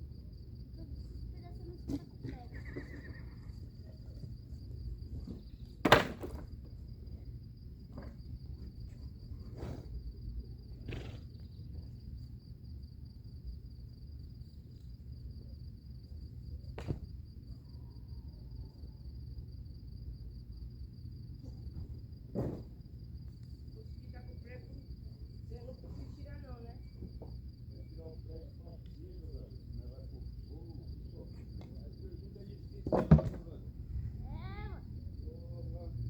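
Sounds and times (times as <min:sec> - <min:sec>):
insect trilling: 0:00.3 - 0:04.7, 0:09.1 - 0:12.3
firewood knocking when dropped: 0:05.8 - 0:06.5, 0:32.8 - 0:33.4.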